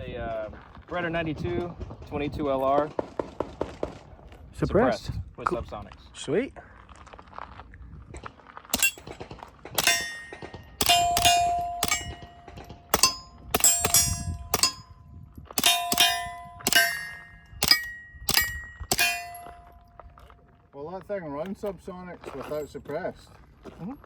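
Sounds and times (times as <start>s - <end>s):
steel target plates clanging: 8.8s - 9.2s, 9.8s - 15.0s, 15.6s - 20.0s
faint suppressed pistol shots: 9.8s - 14.8s.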